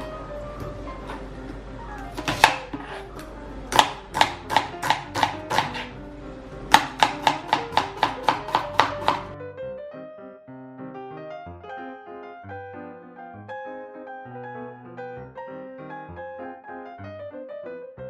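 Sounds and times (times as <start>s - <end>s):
soft piano music: 0.0s - 18.0s
knife chopping on cutting board: 2.0s - 6.0s, 6.7s - 9.4s.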